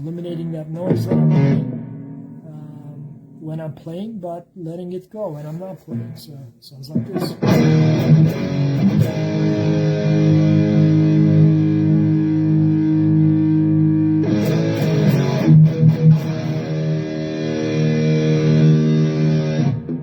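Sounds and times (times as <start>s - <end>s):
distorted electric guitar chords: 0.7s - 3.5s, 6.9s - 20.0s.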